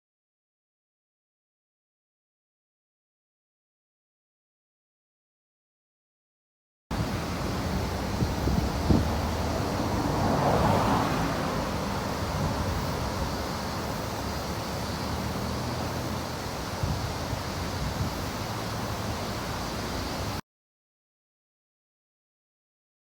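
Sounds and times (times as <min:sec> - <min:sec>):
road traffic noise: 0:06.9 - 0:20.4
wind on microphone: 0:07.0 - 0:19.4.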